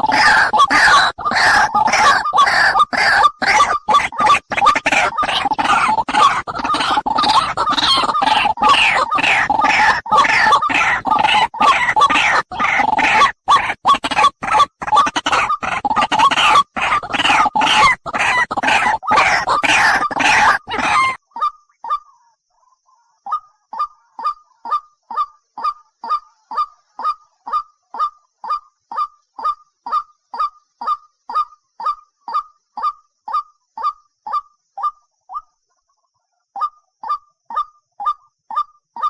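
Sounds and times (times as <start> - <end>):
birds honking calls: 0.0 - 21.2.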